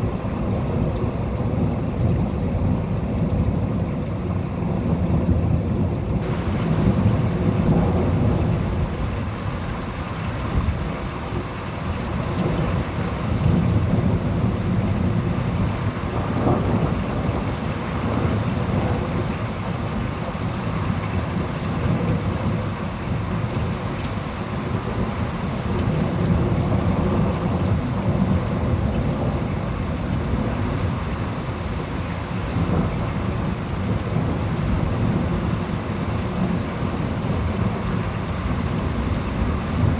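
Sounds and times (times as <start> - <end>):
steady rain: 0.0 - 39.9
thunder rumbling: 6.2 - 20.2.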